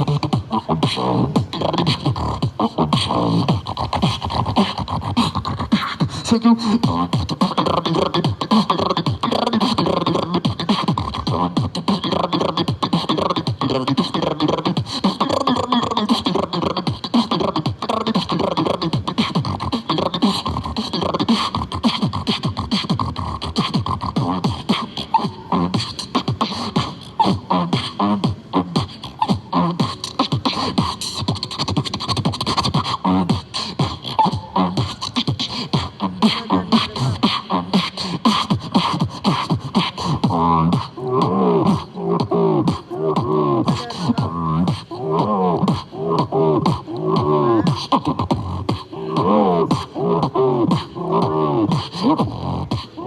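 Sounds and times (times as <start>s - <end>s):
person beatboxing: 0.0s - 53.0s
pitched vocal hums: 0.0s - 53.0s.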